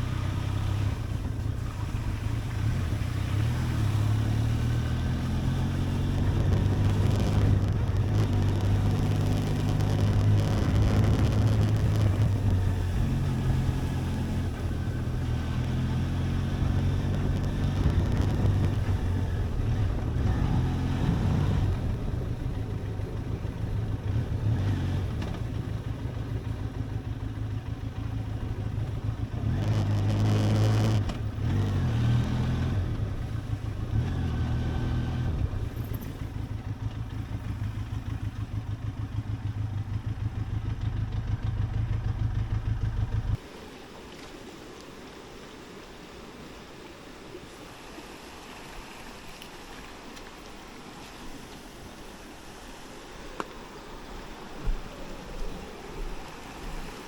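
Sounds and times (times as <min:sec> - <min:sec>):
motorcycle engine revving: 0:00.0 - 0:43.4.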